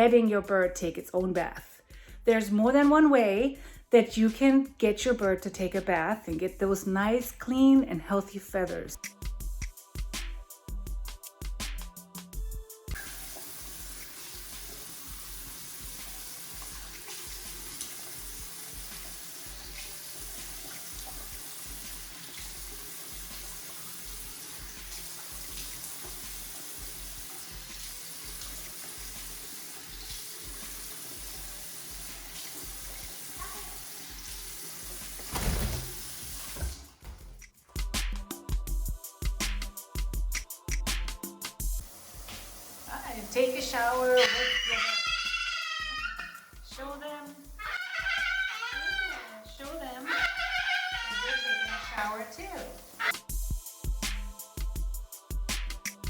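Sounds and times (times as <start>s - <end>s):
background music with low beat: 0.2s - 17.7s, 37.0s - 42.6s, 46.5s - 47.6s, 53.1s - 56.0s
running water: 12.9s - 37.5s, 41.8s - 53.3s.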